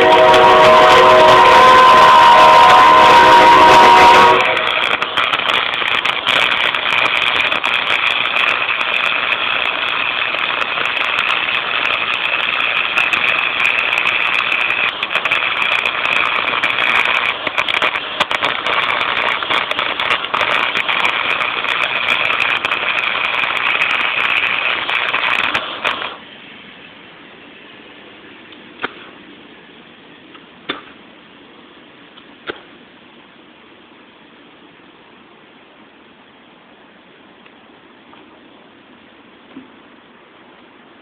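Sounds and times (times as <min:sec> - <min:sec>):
welder arc crackling: 0:00.0 - 0:26.2.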